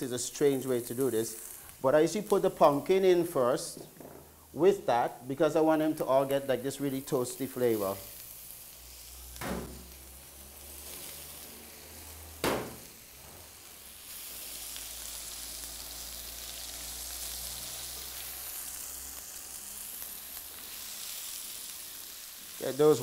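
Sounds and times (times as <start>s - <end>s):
vegetables sizzling in hot oil: 0.0s - 23.0s
sharp knock: 9.4s - 9.8s, 12.4s - 12.8s.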